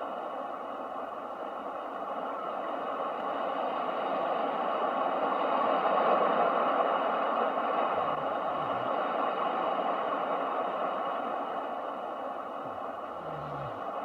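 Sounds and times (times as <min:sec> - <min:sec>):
ocean waves rushing: 0:04.1 - 0:14.0.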